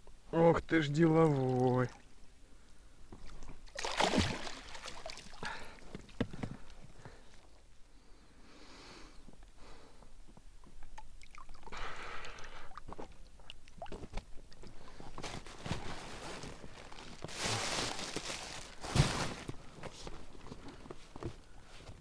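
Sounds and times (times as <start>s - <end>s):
water pouring off a landing net: 3.7s - 5.6s.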